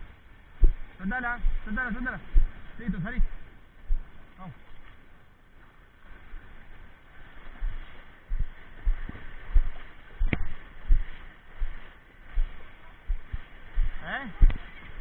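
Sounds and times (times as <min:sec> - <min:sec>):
wind and water hiss: 0:00.0 - 0:15.0.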